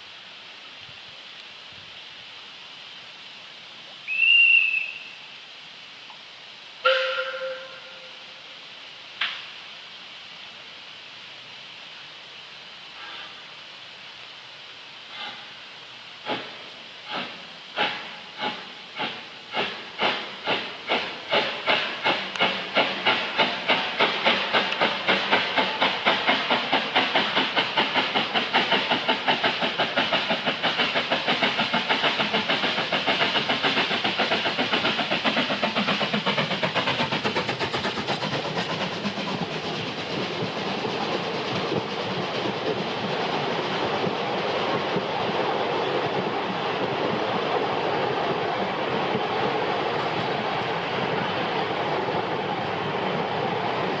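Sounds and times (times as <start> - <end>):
rumble of train wheels: 0.0 - 54.0
steam locomotive chuffing: 6.8 - 8.4, 12.9 - 13.5, 15.1 - 54.0.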